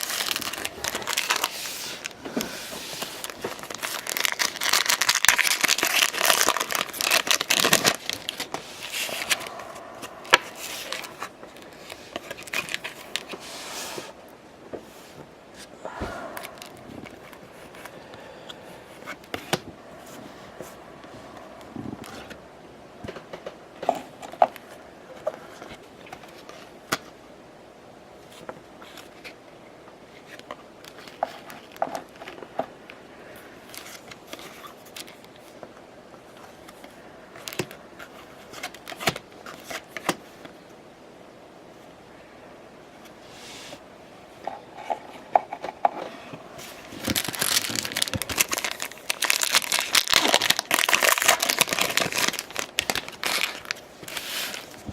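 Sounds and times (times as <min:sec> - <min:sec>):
cards and wrappers handled: 0:00.0 - 0:14.2, 0:33.6 - 0:35.7, 0:36.3 - 0:40.6, 0:44.8 - 0:54.9
faint steady hum: 0:00.0 - 0:54.9.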